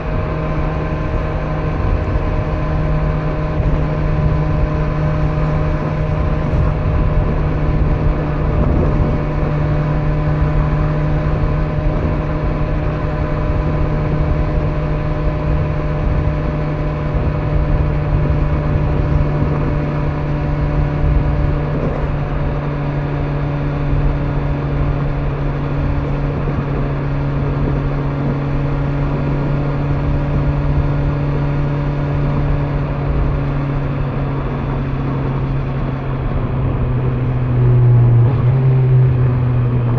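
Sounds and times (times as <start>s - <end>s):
motorcycle engine cruising: 0.0s - 39.9s
road rumble: 0.0s - 39.9s
wind: 0.0s - 39.9s.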